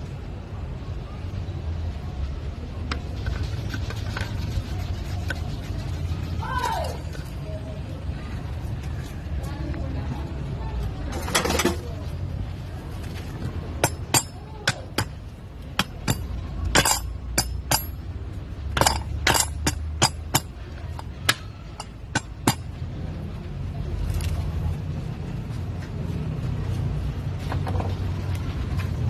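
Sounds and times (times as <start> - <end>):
metal parts clinking: 15.8 - 18.0, 18.8 - 21.1.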